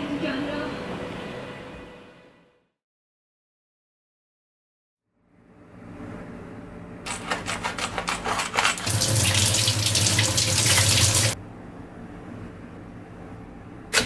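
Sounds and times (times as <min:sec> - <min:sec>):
crinkling and rustling: 0:07.1 - 0:08.9
tap running into sink: 0:08.8 - 0:11.4.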